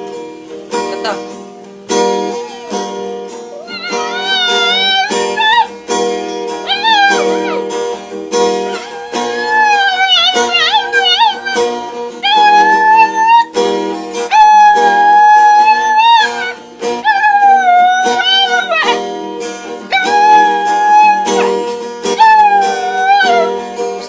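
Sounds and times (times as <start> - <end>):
strummed acoustic guitar: 0.0 - 24.0
dog howling: 2.2 - 5.8, 6.6 - 7.8, 8.6 - 13.6, 14.3 - 19.0, 19.8 - 23.6.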